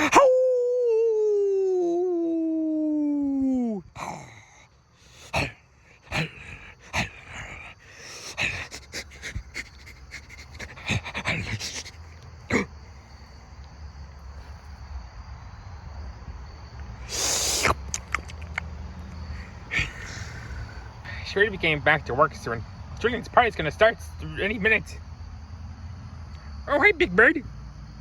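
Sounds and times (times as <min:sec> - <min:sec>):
creature panting and snorting: 0:04.0 - 0:12.8, 0:17.0 - 0:18.6, 0:19.2 - 0:21.1.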